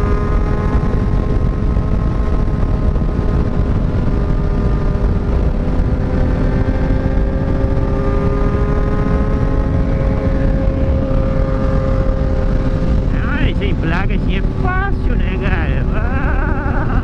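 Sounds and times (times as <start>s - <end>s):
motorcycle engine cruising: 0.0s - 17.0s
wind on microphone: 0.0s - 17.0s.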